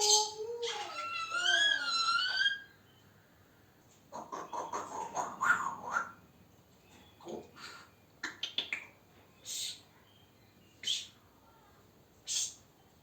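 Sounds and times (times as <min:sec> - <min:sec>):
parrot high-pitched calls: 0:00.0 - 0:02.7.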